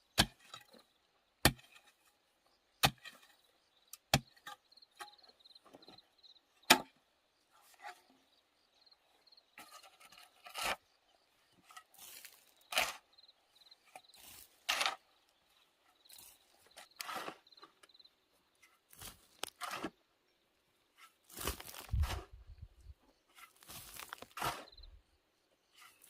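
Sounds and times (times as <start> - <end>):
scrapes crunches and cracks of wood: 11.6 - 13.1, 13.9 - 15.4, 18.6 - 20.0, 20.9 - 25.0.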